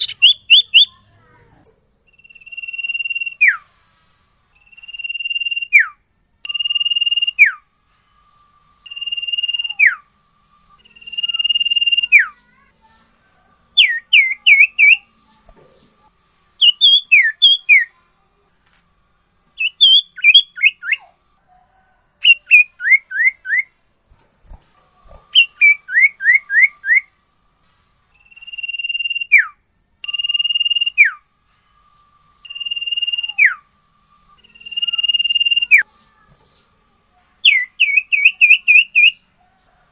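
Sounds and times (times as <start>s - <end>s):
bird singing clear whistles: 0.0s - 1.0s, 2.1s - 3.7s, 4.5s - 7.7s, 8.3s - 10.1s, 13.7s - 16.0s, 16.6s - 18.0s, 19.6s - 23.8s, 25.2s - 27.2s, 28.1s - 31.3s, 31.9s - 33.7s, 37.4s - 39.6s.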